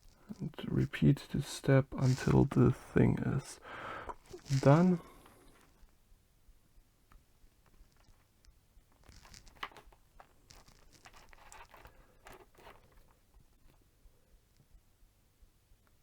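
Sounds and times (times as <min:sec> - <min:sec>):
knife scraping cable insulation: 0:03.5 - 0:05.3.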